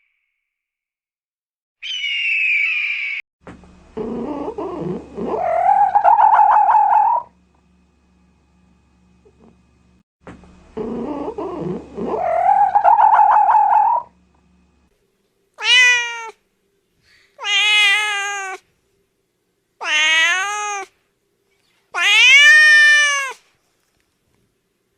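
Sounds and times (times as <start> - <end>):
buzzy pulsing animal call: 4.0 - 7.4, 10.7 - 14.2
cat meowing: 15.6 - 16.4, 17.4 - 18.6, 19.8 - 20.9, 22.0 - 23.5.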